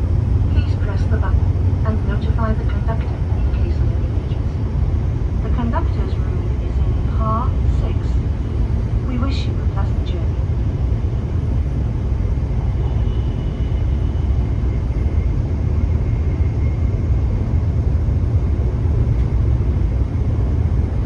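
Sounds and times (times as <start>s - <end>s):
train cabin rumble: 0.0s - 21.0s
faint high whine: 12.5s - 17.4s.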